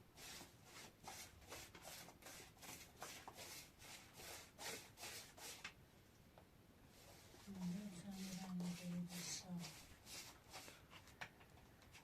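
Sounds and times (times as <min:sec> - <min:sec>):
quick scraping strokes: 0:07.0 - 0:11.0.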